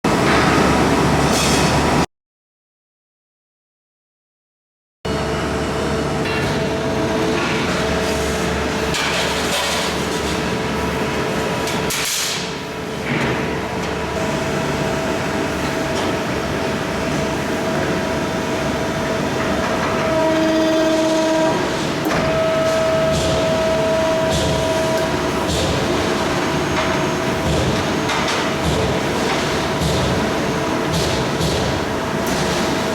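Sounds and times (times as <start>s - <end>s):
press brake machine noise: 11.5s - 32.9s.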